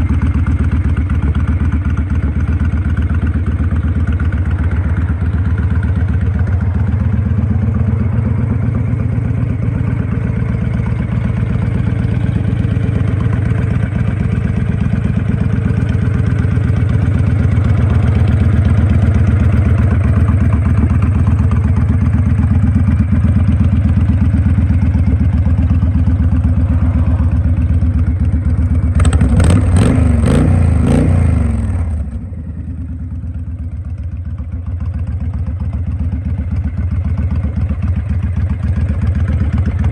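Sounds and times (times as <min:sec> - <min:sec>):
motorcycle engine revving: 0:03.6 - 0:33.0.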